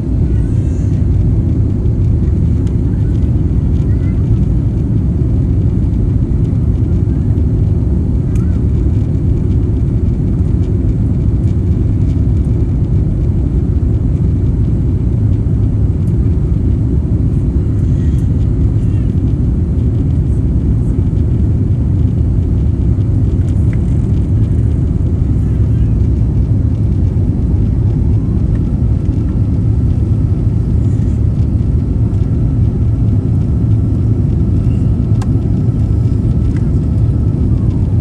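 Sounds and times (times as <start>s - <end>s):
jet engines rumbling: 0.0s - 38.0s.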